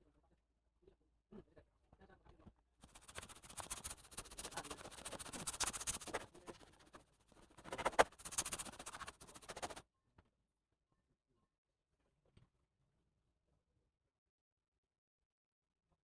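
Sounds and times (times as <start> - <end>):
hands rustling laptop parts: 2.8 - 9.8.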